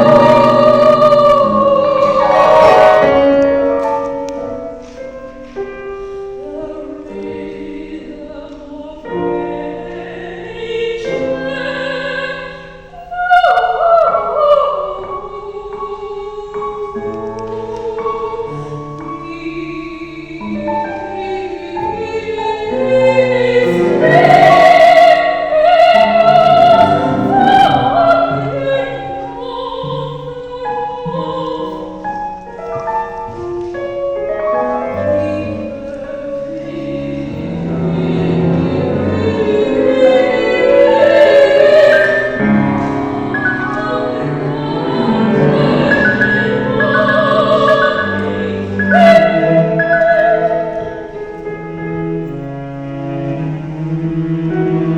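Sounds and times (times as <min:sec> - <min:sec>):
instrumental accompaniment: 0:00.0 - 0:12.1, 0:16.6 - 0:54.9
opera-style singing: 0:00.0 - 0:54.9.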